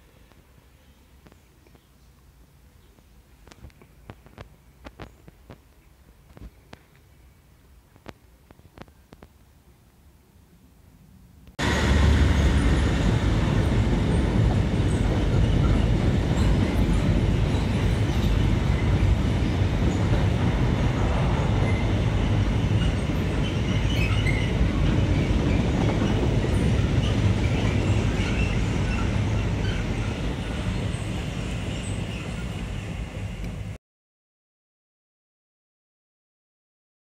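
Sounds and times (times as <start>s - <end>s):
wheels clattering on rails: 11.6s - 33.7s
diesel train engine rumble: 11.6s - 33.8s.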